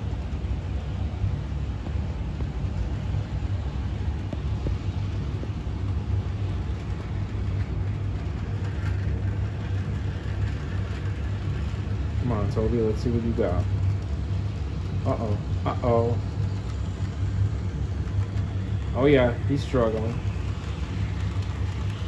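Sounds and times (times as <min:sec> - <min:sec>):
model train motor rumble: 0:05.9 - 0:22.0.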